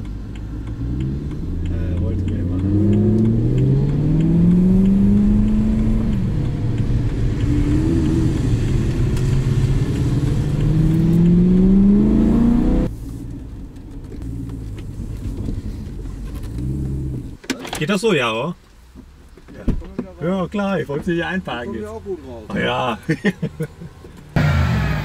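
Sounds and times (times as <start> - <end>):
car engine revving inside cabin: 0.0 - 12.9, 16.4 - 17.4.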